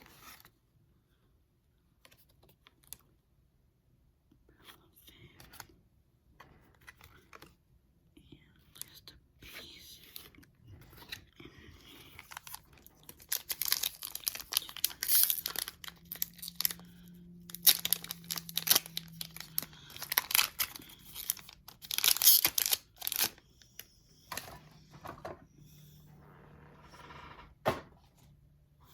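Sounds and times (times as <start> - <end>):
foil wrapper tearing and crinkling: 12.2 - 16.9, 17.5 - 23.3.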